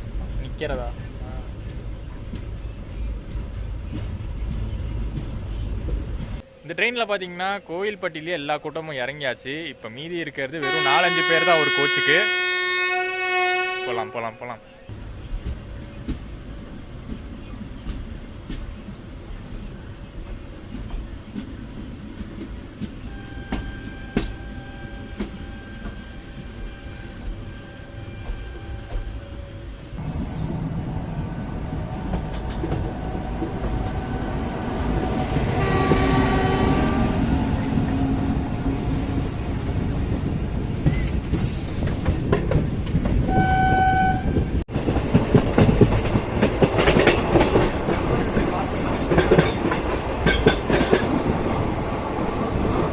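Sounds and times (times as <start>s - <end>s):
train rumble and wheel noise: 0.0s - 52.9s
train horn: 10.6s - 14.3s, 23.1s - 29.4s, 34.8s - 39.4s, 43.3s - 44.5s.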